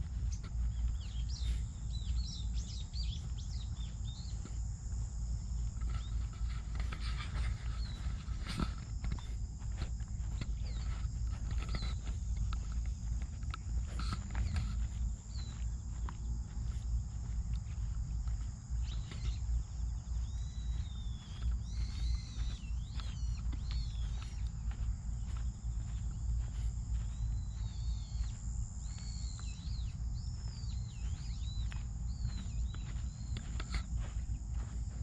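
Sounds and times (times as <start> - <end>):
wind rumble on microphone: 0.0 - 35.0
bird chirping: 0.1 - 4.5, 5.8 - 16.1, 18.8 - 34.7
footstep-like clicks: 5.6 - 16.3.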